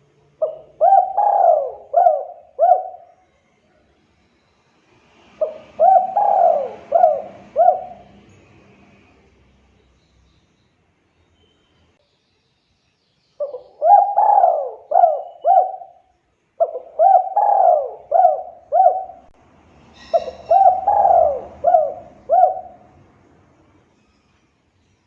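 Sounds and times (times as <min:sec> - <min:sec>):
dove cooing: 0:00.4 - 0:03.2, 0:05.4 - 0:08.3, 0:13.4 - 0:16.0, 0:16.6 - 0:19.4, 0:20.0 - 0:23.0.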